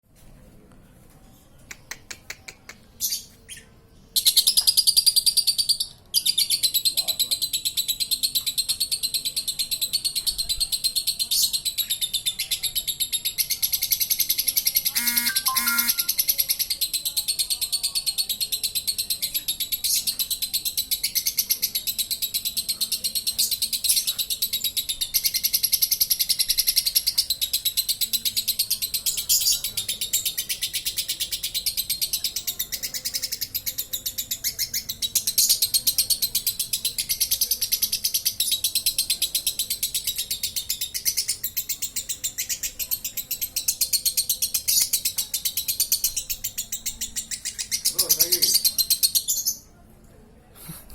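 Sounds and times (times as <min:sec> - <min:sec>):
lovebird chattering trill: 0:14.8 - 0:16.3.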